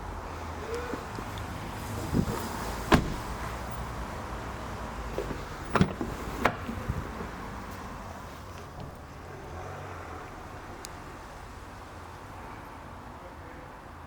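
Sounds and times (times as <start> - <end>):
car doors clunking: 2.1 - 4.0, 5.1 - 7.4, 8.6 - 9.3.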